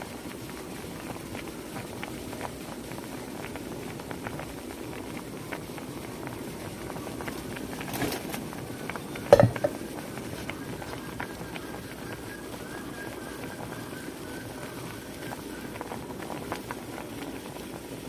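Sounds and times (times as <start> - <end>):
water boiling and bubbling: 0.0 - 18.0
sharp knock: 9.3 - 9.8.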